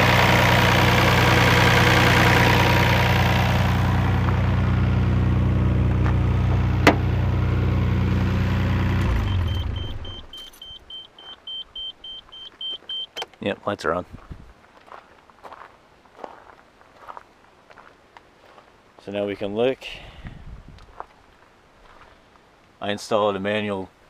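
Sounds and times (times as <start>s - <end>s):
engine winding down: 0.0s - 10.4s
car engine idling: 0.0s - 10.5s.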